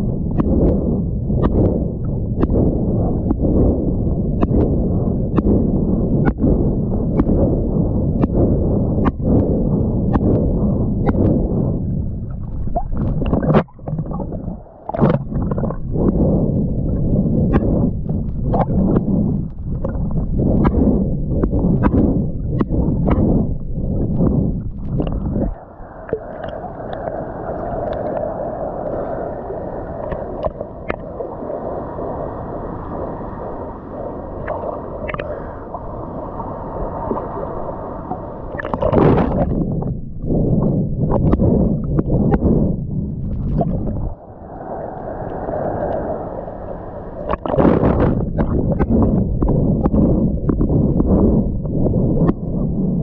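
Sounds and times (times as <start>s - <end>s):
water sloshing and splashing: 12.2s - 17.7s, 24.2s - 40.0s, 43.2s - 50.7s.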